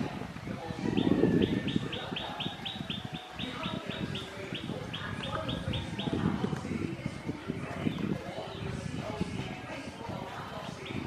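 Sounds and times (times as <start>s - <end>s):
bird chirping rapidly: 0.9s - 6.4s, 10.5s - 11.0s.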